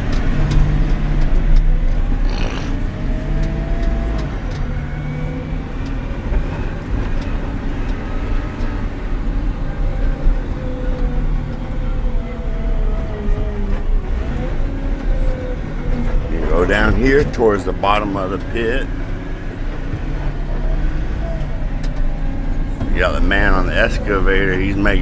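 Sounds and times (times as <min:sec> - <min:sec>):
faint engine whines: 0:00.0 - 0:25.0
truck diesel engine rumble: 0:00.0 - 0:25.0.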